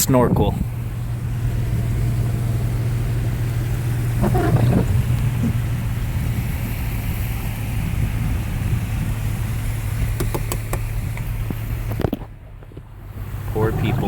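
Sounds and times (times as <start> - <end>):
low engine hum: 0.0 - 14.0
rushing water: 0.8 - 12.0.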